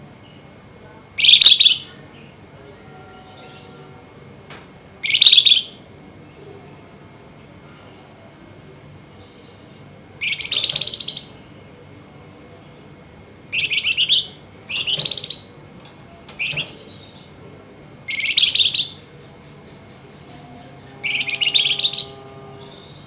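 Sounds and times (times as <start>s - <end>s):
songbird scratchy trilled bursts: 18.1s - 23.0s.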